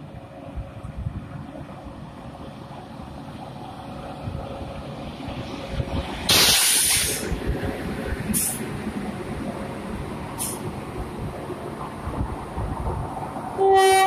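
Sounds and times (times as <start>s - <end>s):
air hiss: 6.3s - 7.3s.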